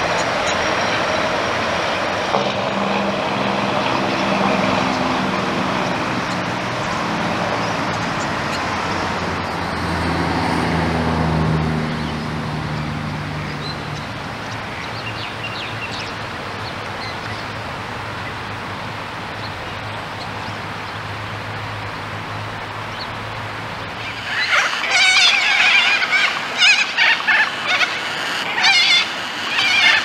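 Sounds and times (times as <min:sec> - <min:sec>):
outdoor background hum: 0:00.0 - 0:30.0
whinny-like bird calls: 0:24.0 - 0:30.0.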